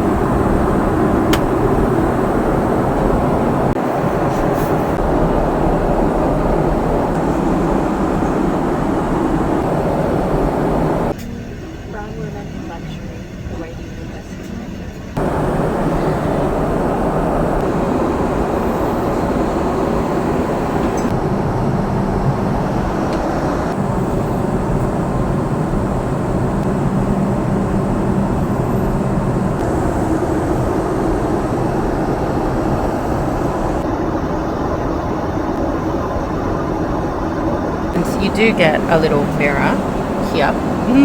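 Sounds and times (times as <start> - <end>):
jet engines and airflow rushing: 0.0 - 11.3, 15.1 - 41.0
faint low hum: 38.0 - 41.0.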